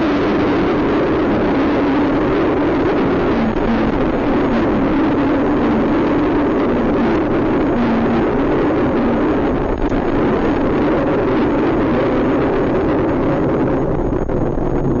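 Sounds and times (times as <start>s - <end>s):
vehicle engine and tyre rumble: 0.0s - 15.0s.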